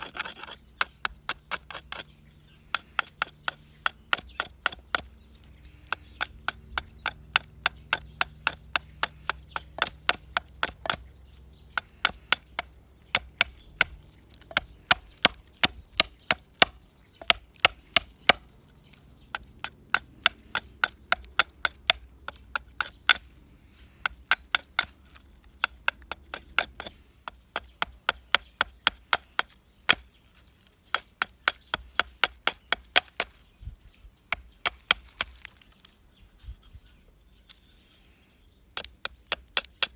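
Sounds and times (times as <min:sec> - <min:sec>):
hand tool chopping wood: 0:00.0 - 0:35.9, 0:38.7 - 0:39.9.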